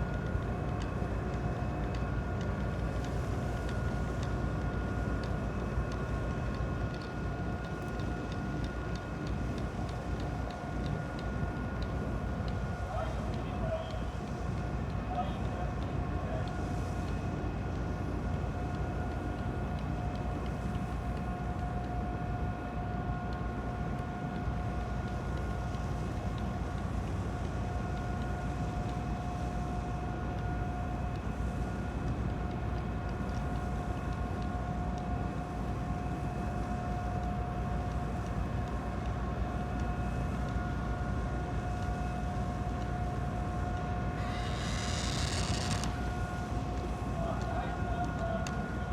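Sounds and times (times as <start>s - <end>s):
constant hum: 0.0s - 48.9s.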